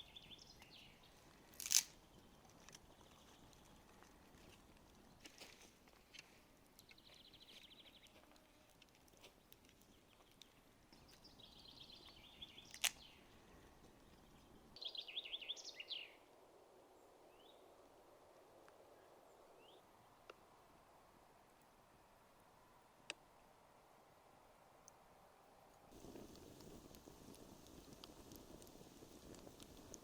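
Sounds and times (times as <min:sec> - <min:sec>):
campfire crackling: 0:00.1 - 0:14.8, 0:25.9 - 0:30.0
fire popping: 0:00.2 - 0:14.7, 0:25.9 - 0:30.0.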